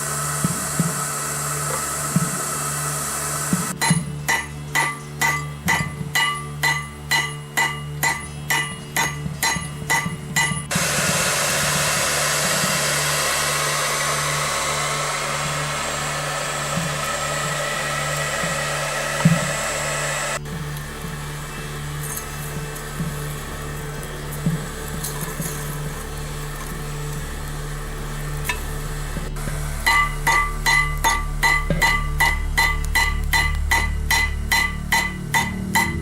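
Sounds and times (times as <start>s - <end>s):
hammer striking steel on anvil: 3.5s - 13.0s, 29.8s - 36.0s
low hum: 10.0s - 36.0s.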